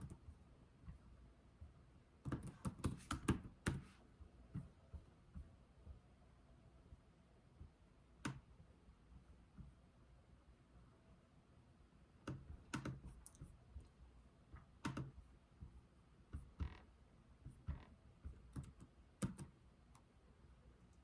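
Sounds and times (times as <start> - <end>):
computer keyboard keystroke clicks: 12.3 - 13.5, 18.5 - 19.5.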